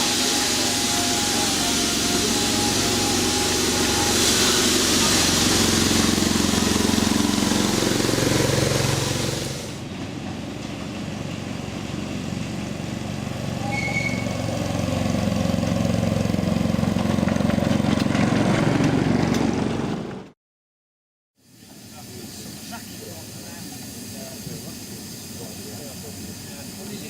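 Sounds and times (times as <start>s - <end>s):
strong hiss: 0.0s - 9.8s, 21.4s - 27.0s
miniature locomotive running: 21.9s - 27.0s.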